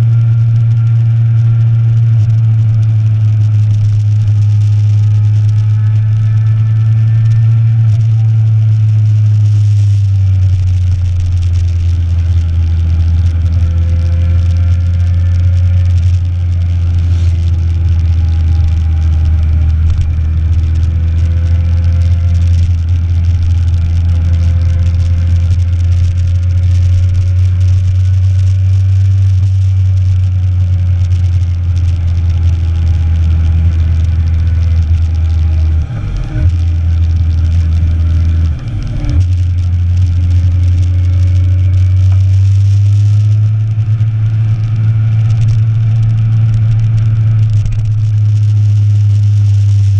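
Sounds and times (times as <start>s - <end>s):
faint motorcycle engine: 0.0s - 49.9s
wind noise on microphone: 1.6s - 49.9s.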